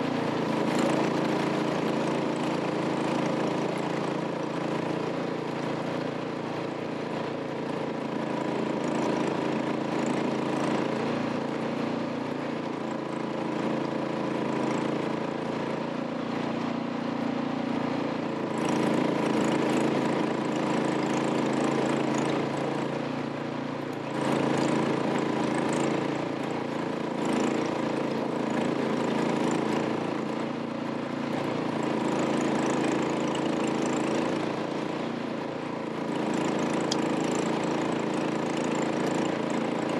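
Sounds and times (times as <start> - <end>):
truck engine running: 14.3 - 39.9.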